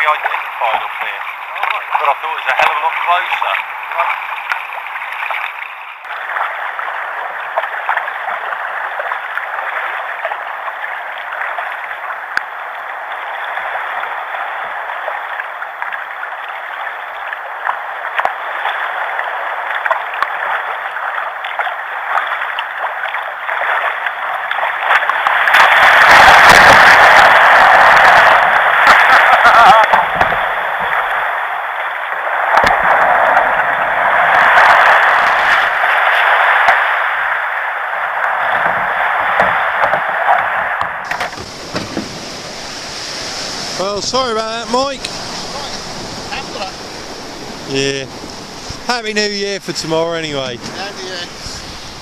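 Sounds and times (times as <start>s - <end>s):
water sloshing against kayak: 0.0s - 52.0s
low rumbling: 40.9s - 52.0s.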